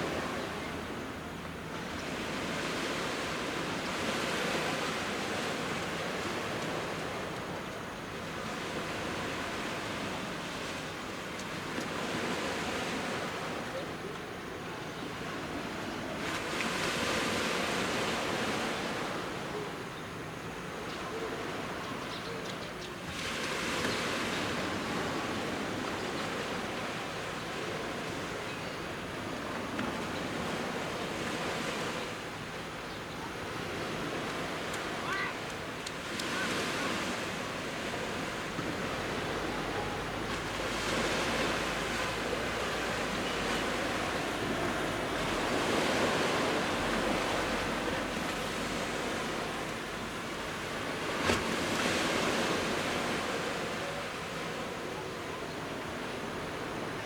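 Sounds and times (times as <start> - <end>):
sea waves breaking on beach: 23.1 - 57.0.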